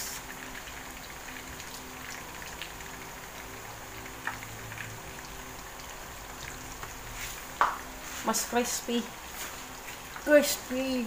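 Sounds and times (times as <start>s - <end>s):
fish frying in oil: 0.0s - 11.0s
light tap: 7.6s - 7.8s.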